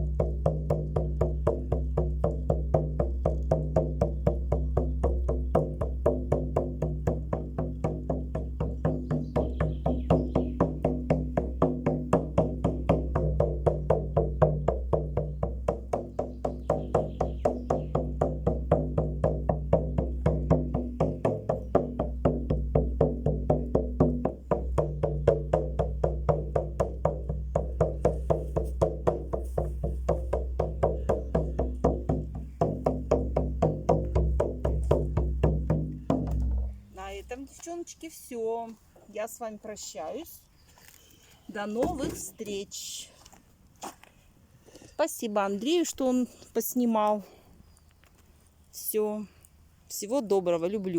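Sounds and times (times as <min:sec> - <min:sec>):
rhythmic drumming: 0:00.0 - 0:37.5.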